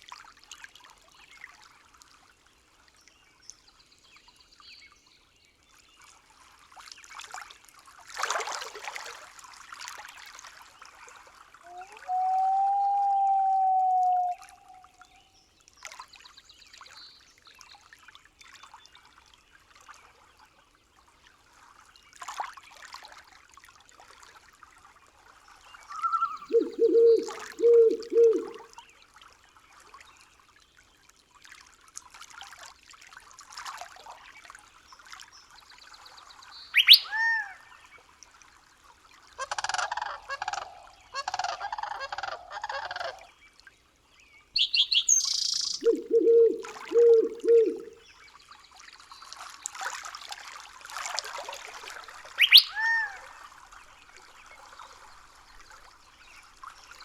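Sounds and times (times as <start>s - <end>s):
faint stream: 0.0s - 57.0s
low pulsed animal calls: 26.1s - 28.6s, 44.6s - 48.0s
high chirps: 26.5s - 28.6s, 44.6s - 47.9s.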